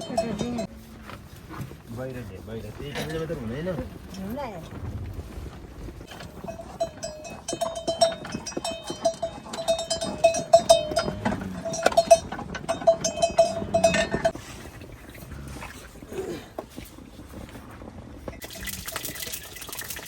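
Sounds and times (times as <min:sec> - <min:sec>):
livestock bells clanking: 0:00.0 - 0:01.1, 0:06.1 - 0:14.5, 0:18.3 - 0:19.9.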